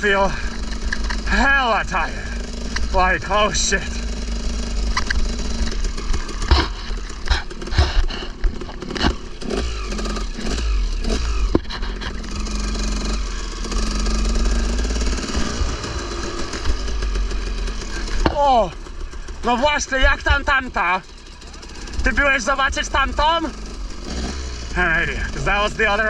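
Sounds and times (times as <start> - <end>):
dirt bike engine revving: 0.0 - 26.0
sharp knocks and clatters: 4.6 - 12.4, 14.3 - 20.5.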